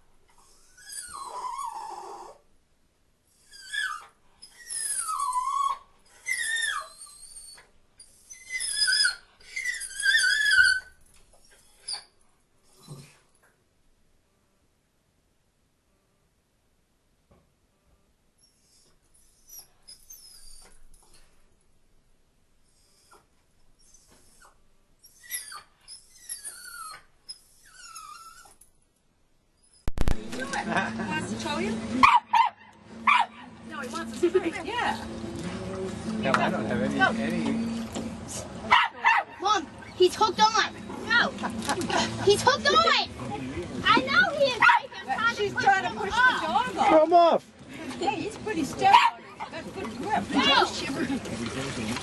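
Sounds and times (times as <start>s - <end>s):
dog whining: 0.4s - 2.5s, 3.4s - 12.1s, 18.4s - 21.0s, 23.8s - 28.6s.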